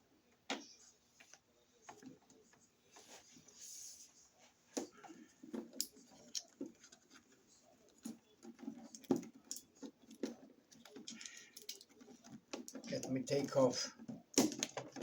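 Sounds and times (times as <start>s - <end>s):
hard plastic clicking and knocking: 8.0s - 15.0s.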